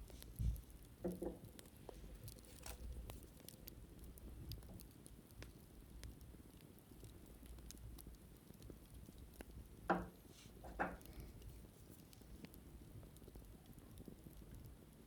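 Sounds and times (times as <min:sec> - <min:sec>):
wicker basket crackling: 0:00.0 - 0:05.5.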